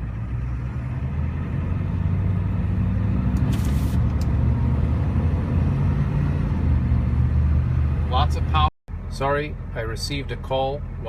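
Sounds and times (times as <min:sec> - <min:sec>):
diesel van engine accelerating: 0:00.0 - 0:11.0
brief hiss: 0:03.5 - 0:04.0.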